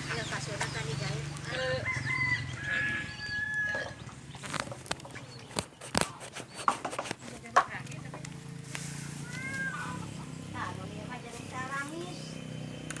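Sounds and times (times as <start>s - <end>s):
cat yowling: 9.2s - 10.1s.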